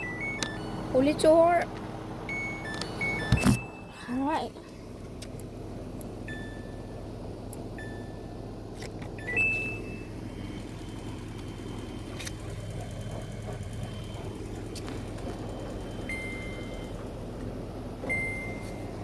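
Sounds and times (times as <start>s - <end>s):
washing machine beeps: 0.0s - 1.6s, 2.2s - 4.2s, 6.2s - 7.0s, 7.7s - 8.3s, 9.2s - 12.2s, 12.9s - 17.2s, 18.0s - 19.0s
steady low hum: 0.0s - 19.0s.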